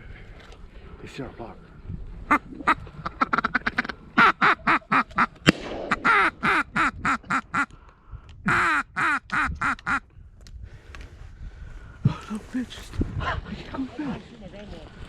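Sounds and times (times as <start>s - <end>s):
duck quacking: 2.3s - 5.4s, 6.0s - 7.7s, 8.5s - 10.0s.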